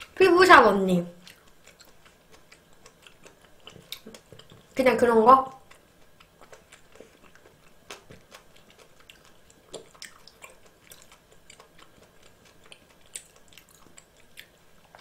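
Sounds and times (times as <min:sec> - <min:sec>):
mouth chewing: 0:01.2 - 0:04.8, 0:05.5 - 0:15.0.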